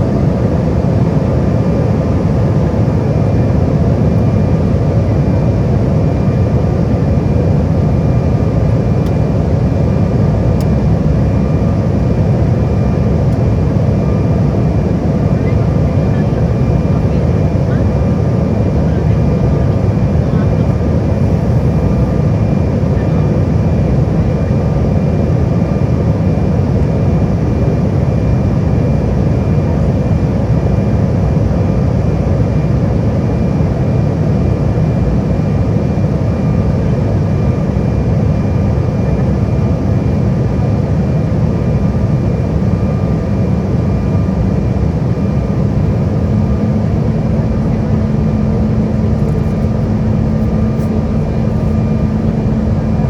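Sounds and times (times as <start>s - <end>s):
faint steady whines: 0.0s - 53.0s
jet engine and airflow noise: 0.0s - 53.0s
low steady hum: 45.5s - 53.0s.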